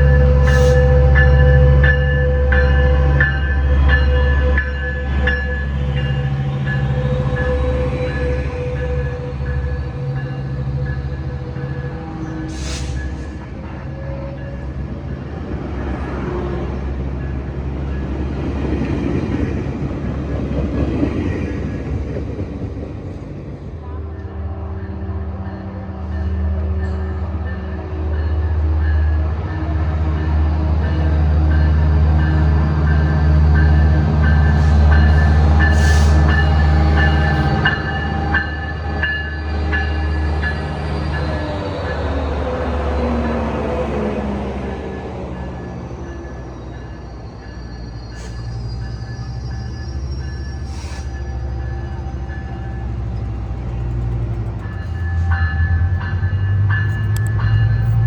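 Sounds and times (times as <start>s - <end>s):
diesel train engine drone: 0.0s - 58.0s
train rumble: 0.0s - 58.0s.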